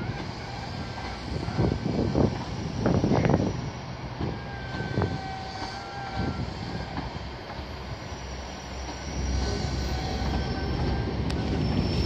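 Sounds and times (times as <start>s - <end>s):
faint wheel squeal: 0.0s - 12.0s
train rumble: 0.0s - 12.0s.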